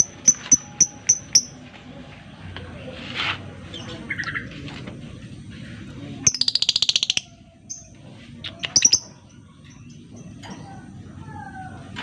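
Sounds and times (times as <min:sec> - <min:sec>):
bird chirping and chattering: 0:00.0 - 0:01.6, 0:03.7 - 0:04.6, 0:06.2 - 0:11.0.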